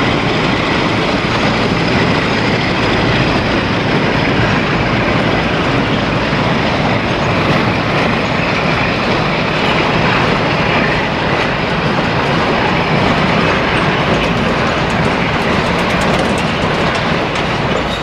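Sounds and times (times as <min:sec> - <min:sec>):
train wheels running on rails: 0:00.0 - 0:18.0.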